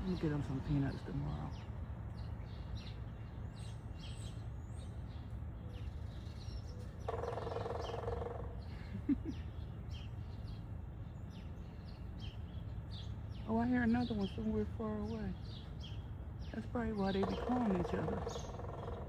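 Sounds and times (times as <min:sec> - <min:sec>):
small birds chirping: 0:00.0 - 0:19.0
longer pitched bird call: 0:06.6 - 0:10.1.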